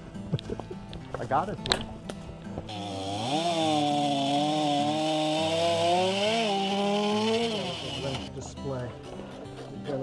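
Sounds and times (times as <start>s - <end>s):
chainsaw engine revving: 2.7s - 8.3s.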